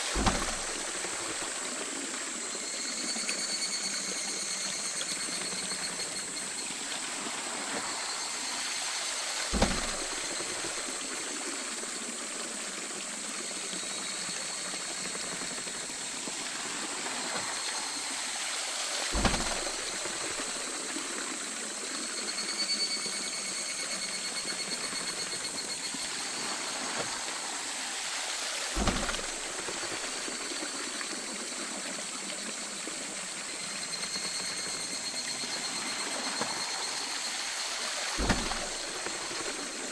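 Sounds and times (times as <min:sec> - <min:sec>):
water running and splashing: 0:00.0 - 0:39.9
dull low thump: 0:09.6 - 0:10.8, 0:19.2 - 0:20.4, 0:28.8 - 0:29.7, 0:38.2 - 0:39.5.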